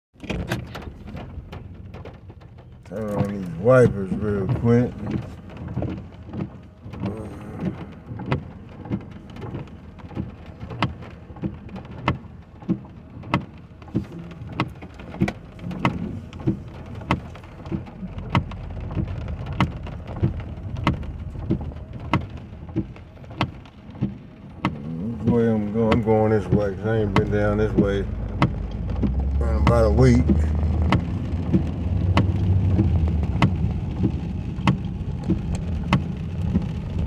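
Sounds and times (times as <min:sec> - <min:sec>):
raindrops tapping on car roof: 0:00.2 - 0:37.0
steady hiss of rain: 0:00.6 - 0:37.0
low rumble: 0:15.4 - 0:37.0.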